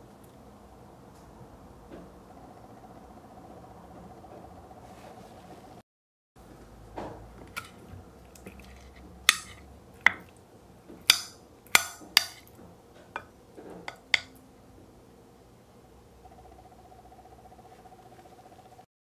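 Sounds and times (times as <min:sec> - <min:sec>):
spoon clinking on plate: 0:09.3 - 0:10.2, 0:13.9 - 0:14.3.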